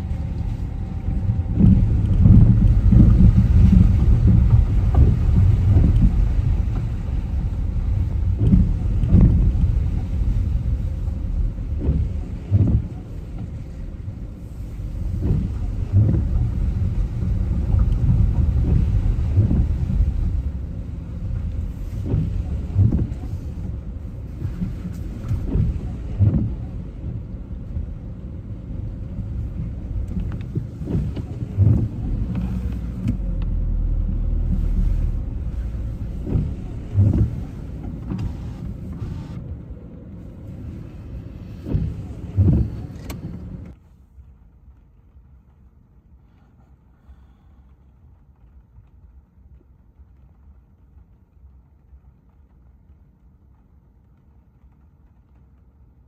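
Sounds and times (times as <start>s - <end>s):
car tyres rumbling on wet road: 0.0s - 43.8s.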